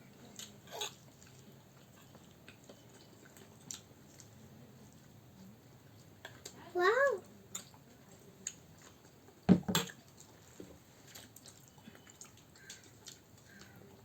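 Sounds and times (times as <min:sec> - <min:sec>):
person chewing food: 0:00.2 - 0:05.2, 0:07.5 - 0:14.0
knock: 0:09.5 - 0:09.9.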